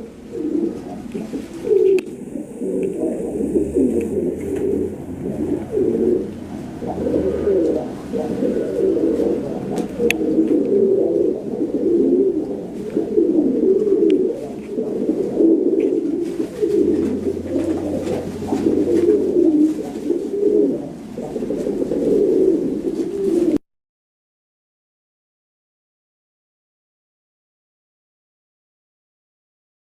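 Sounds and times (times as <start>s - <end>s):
pigeons cooing: 0.0s - 23.6s.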